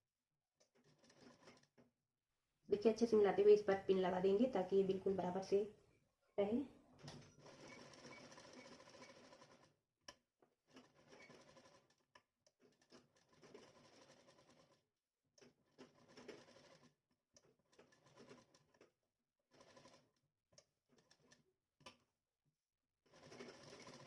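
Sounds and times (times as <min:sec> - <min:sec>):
sewing machine stitching: 0:00.6 - 0:01.8, 0:07.0 - 0:09.7, 0:10.7 - 0:14.8, 0:15.4 - 0:18.9, 0:19.5 - 0:20.2, 0:20.9 - 0:21.4, 0:23.1 - 0:24.0.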